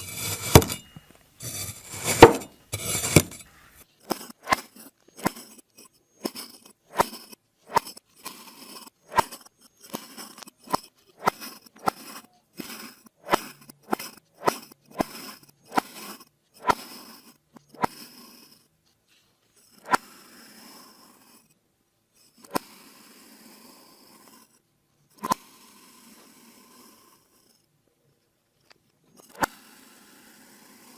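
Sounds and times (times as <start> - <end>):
blade slicing crunchy sand: 0.0 - 3.6.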